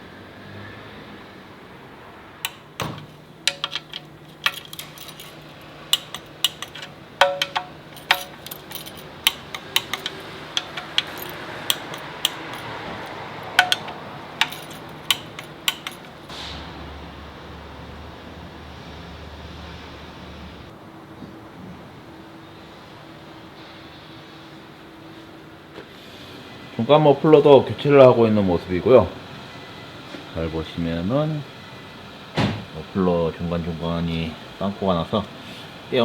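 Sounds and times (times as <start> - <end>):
hand tools and metal clinking: 2.4 - 16.3.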